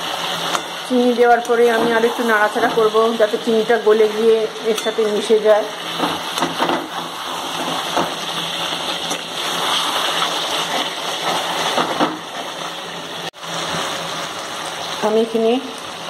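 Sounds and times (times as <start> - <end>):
chicken sizzling in oil: 0.0 - 16.0
metal spatula scraping pan: 4.1 - 12.6.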